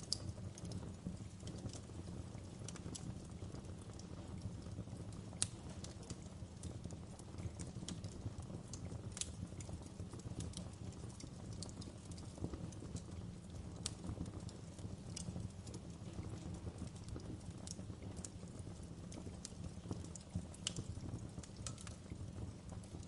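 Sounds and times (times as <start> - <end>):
fire crackling and popping: 0.0 - 23.0
flames rumbling: 0.0 - 23.0.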